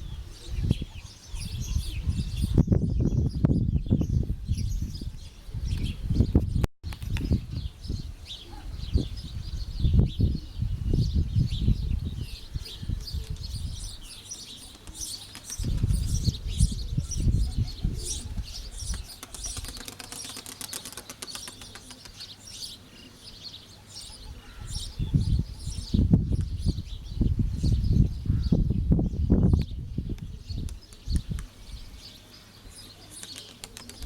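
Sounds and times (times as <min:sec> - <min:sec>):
wind gusting on microphone: 0:00.0 - 0:14.2, 0:14.8 - 0:19.8, 0:24.3 - 0:32.1
birds chirping: 0:07.6 - 0:34.0
pigeon wings flapping: 0:14.7 - 0:16.0, 0:18.9 - 0:22.2, 0:33.1 - 0:34.0.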